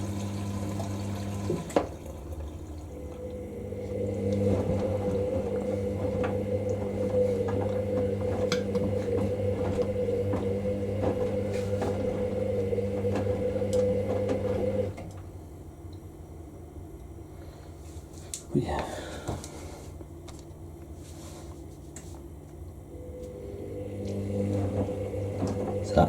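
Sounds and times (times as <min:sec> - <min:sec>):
washing machine motor hum: 0:00.0 - 0:26.0
load tumbling knocks and clicks: 0:03.1 - 0:15.3.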